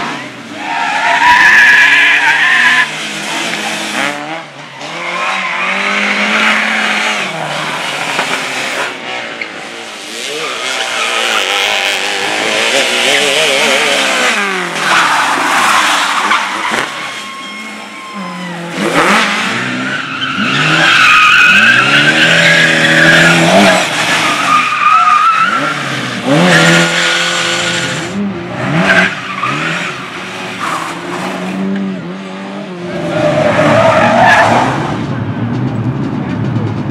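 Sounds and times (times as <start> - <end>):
car engines revving: 0.0 - 36.9
tyres squealing: 13.2 - 25.8.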